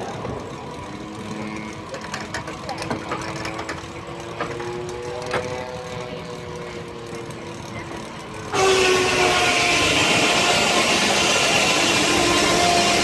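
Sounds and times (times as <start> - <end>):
sawmill blade cutting log: 8.5 - 13.0.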